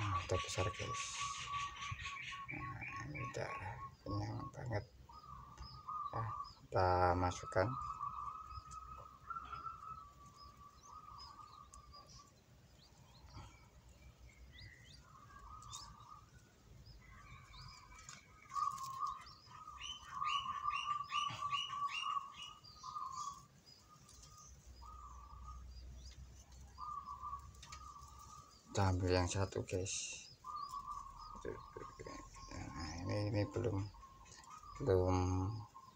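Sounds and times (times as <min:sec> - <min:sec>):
bird chirps: 0:00.0 - 0:35.9.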